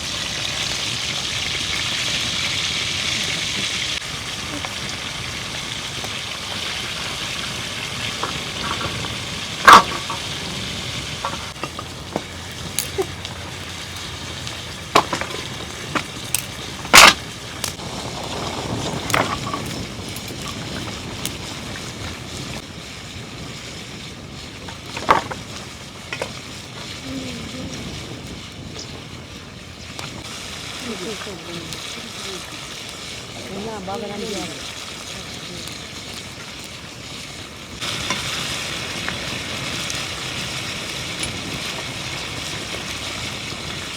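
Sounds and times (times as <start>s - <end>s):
food sizzling in a pan: 0.0s - 43.9s
utensil knocking against pan: 9.6s - 10.3s.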